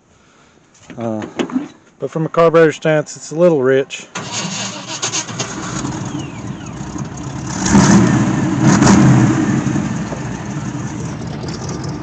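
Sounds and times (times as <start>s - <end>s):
truck engine running and revving: 5.4s - 12.0s.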